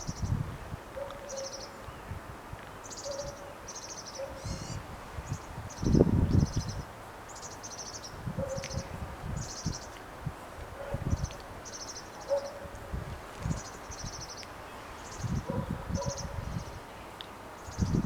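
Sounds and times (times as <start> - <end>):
wind gusts on microphone: 0.0 - 1.2, 1.9 - 2.6, 4.2 - 7.1, 8.0 - 11.7, 12.4 - 18.0
small birds chirping: 1.0 - 2.1, 2.7 - 10.1, 11.0 - 12.6, 13.4 - 18.0.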